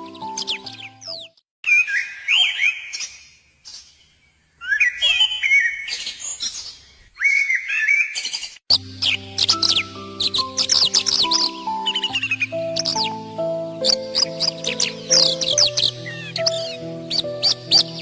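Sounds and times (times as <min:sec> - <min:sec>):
background music: 0:00.0 - 0:01.3, 0:08.7 - 0:18.0
pet bird chirping and whistling: 0:07.2 - 0:13.2, 0:13.8 - 0:18.0.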